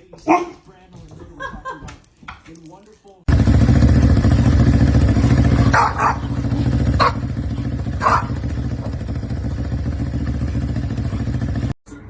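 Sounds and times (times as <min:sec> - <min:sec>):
dog barking: 0:00.2 - 0:00.6, 0:05.5 - 0:09.2.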